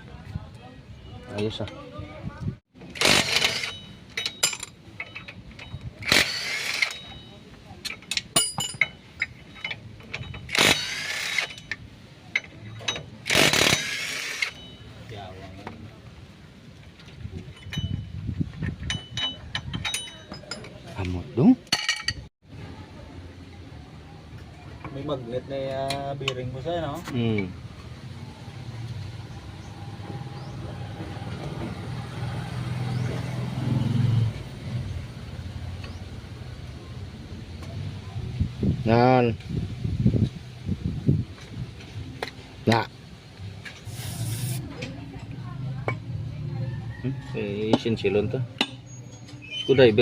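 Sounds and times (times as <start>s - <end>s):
vehicle engine humming: 22.5s - 38.8s.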